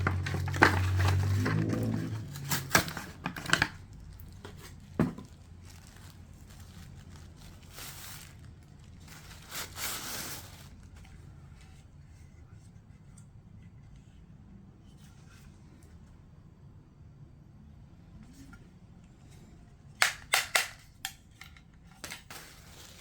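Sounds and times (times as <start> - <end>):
packaging clicks and knocks: 0.0 - 6.1, 20.0 - 20.8
packaging crinkling and tearing: 0.0 - 11.0, 22.0 - 23.0.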